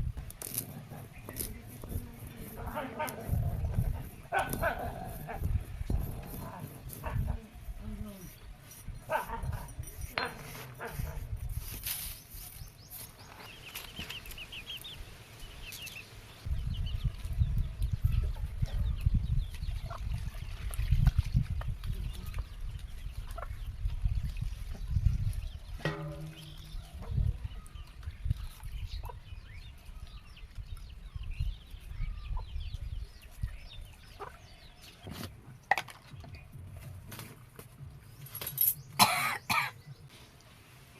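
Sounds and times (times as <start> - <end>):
chickens clucking: 34.1 - 34.4.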